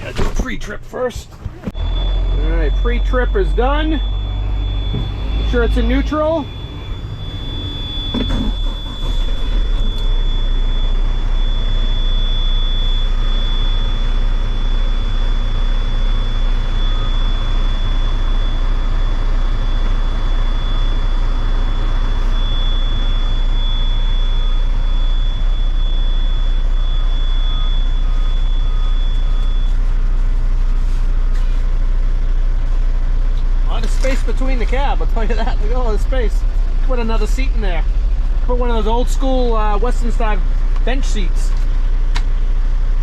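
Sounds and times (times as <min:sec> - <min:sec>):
diesel truck engine idling: 0:01.6 - 0:43.0
thin high-pitched tone: 0:01.8 - 0:08.7.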